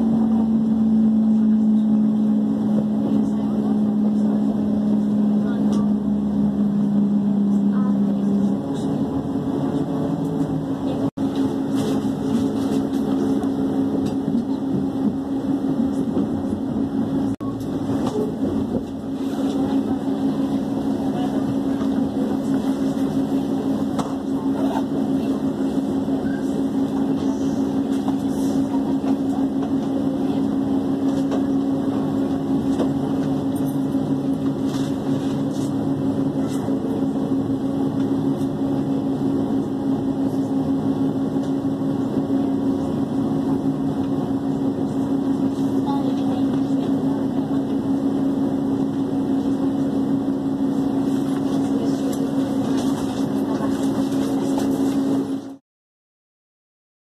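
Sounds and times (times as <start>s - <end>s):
lower hum note: 0.0s - 20.3s
train running hum: 0.0s - 55.6s.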